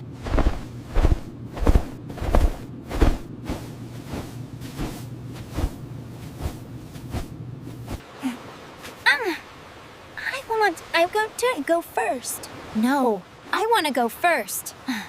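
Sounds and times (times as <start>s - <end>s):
low steady hum: 0.0s - 15.0s
footsteps thudding: 0.2s - 8.0s.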